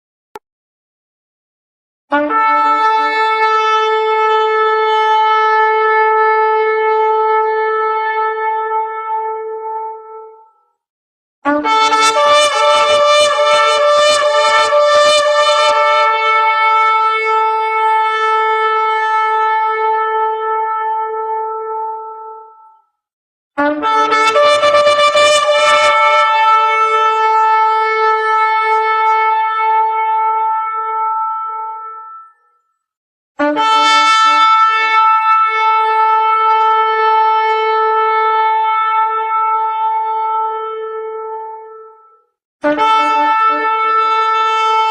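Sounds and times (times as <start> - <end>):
shofar blowing: 2.1 - 10.4, 11.5 - 22.6, 23.6 - 32.4, 33.4 - 44.9.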